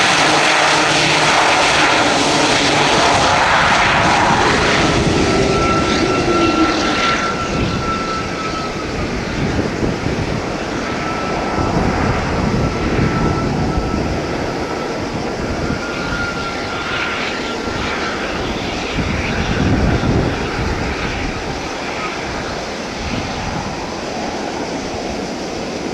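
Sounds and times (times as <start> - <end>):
broad rushing noise: 0.0 - 16.1
turboprop engines running: 0.0 - 25.9
thin high whine: 0.2 - 9.7.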